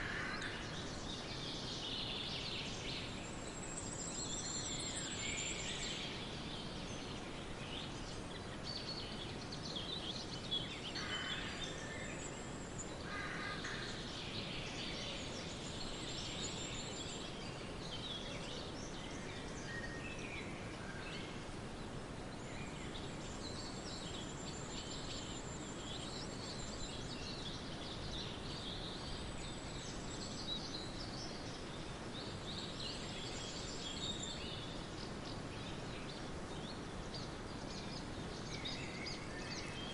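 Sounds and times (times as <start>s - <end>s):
steady background hiss: 0.0s - 39.9s
birds singing and chirping: 22.3s - 39.9s.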